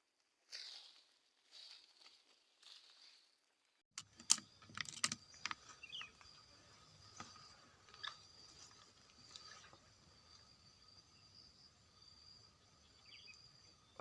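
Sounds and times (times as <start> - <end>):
high insect drone: 4.0 - 14.0.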